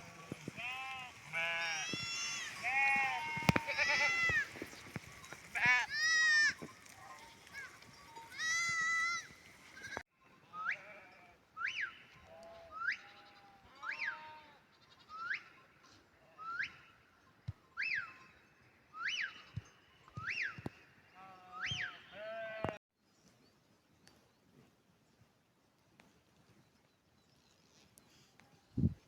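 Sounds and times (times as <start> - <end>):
sheep bleating: 0.0 - 4.6, 5.5 - 6.6, 21.2 - 22.8.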